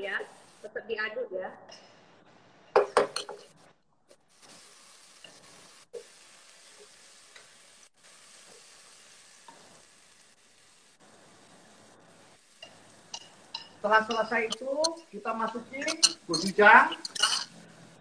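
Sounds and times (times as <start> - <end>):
food sizzling in a pot: 0.0 - 1.1, 1.7 - 18.0
spatula scraping a pot: 12.6 - 17.8.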